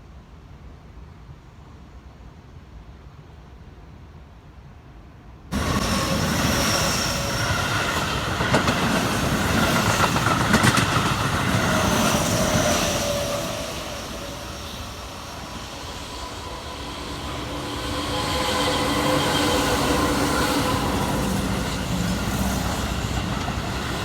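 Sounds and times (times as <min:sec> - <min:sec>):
train wheels clacking over rail joints: 0:05.5 - 0:14.5, 0:17.4 - 0:24.0
train running gear whine: 0:05.5 - 0:24.0.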